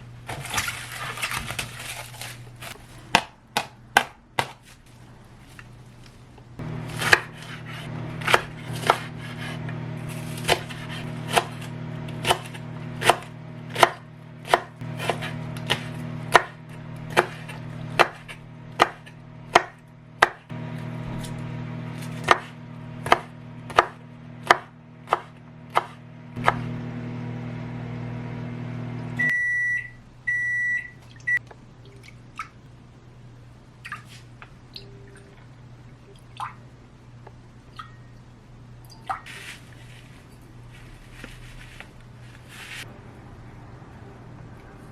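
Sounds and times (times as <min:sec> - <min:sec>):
knife chopping on cutting board: 0:03.1 - 0:04.6, 0:06.9 - 0:09.6, 0:10.3 - 0:20.4, 0:22.0 - 0:26.6
microwave oven humming: 0:05.0 - 0:32.1
microwave beeps: 0:29.2 - 0:31.5.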